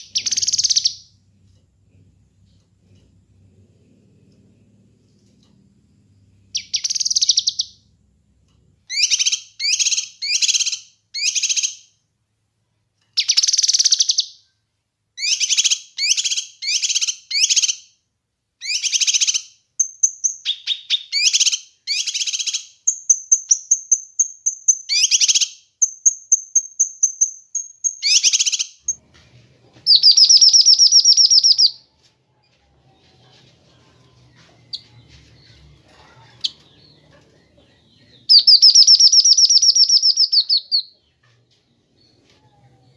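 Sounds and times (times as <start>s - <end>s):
bird trilling: 0.0s - 1.0s, 29.9s - 31.8s, 38.2s - 40.9s.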